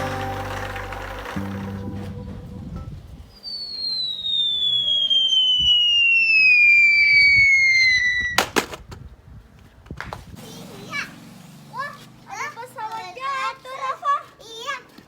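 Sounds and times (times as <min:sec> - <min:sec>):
crackling bang: 0:00.0 - 0:02.6, 0:08.4 - 0:09.0
falling whistle: 0:00.0 - 0:08.4.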